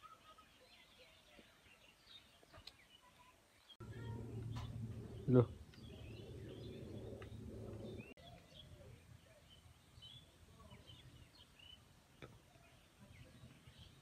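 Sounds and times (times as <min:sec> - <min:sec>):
small birds chirping: 0:00.0 - 0:14.0
low background rumble: 0:03.8 - 0:11.4.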